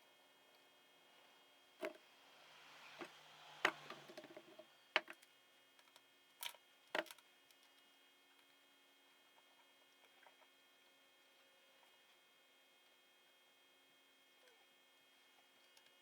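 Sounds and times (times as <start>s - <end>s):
faint hiss: 0.0s - 4.9s.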